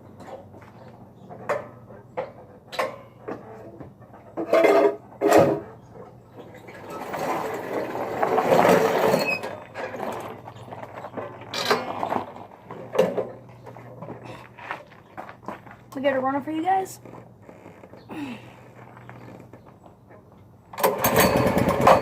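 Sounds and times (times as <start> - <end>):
rattly mechanical noise: 17.0 - 22.0
recoil starter pulls: 20.7 - 22.0.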